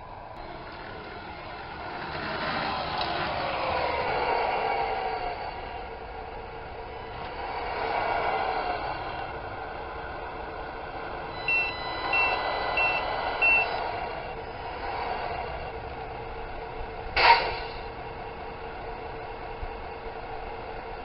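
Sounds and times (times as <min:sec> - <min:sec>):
simulated engine sound: 0:00.1 - 0:21.0
reversing beeper: 0:11.3 - 0:14.4
air-brake hiss: 0:17.2 - 0:18.0.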